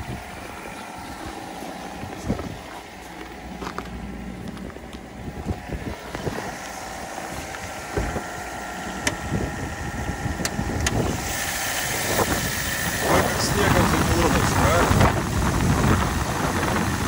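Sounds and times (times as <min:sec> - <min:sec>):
small car engine idling: 0:00.0 - 0:17.0
footsteps in snow: 0:01.2 - 0:07.9.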